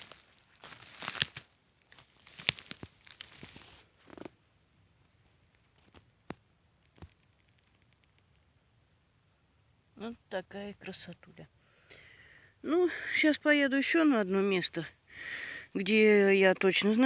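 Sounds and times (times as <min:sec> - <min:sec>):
rustling dry leaves and twigs: 0:00.0 - 0:08.6.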